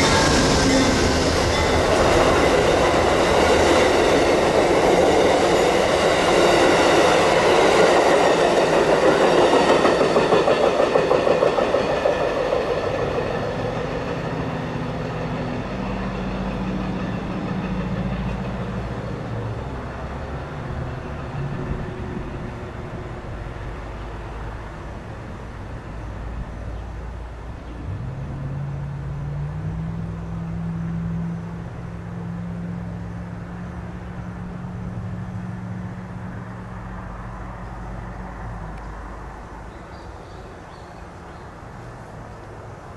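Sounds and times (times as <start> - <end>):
engine hum: 0.0 - 42.9
vehicle rumble: 13.2 - 42.9.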